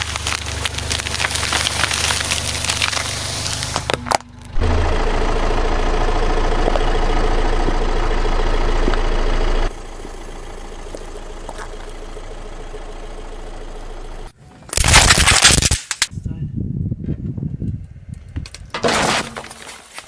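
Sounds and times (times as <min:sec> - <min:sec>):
car engine humming: 0:00.0 - 0:14.8.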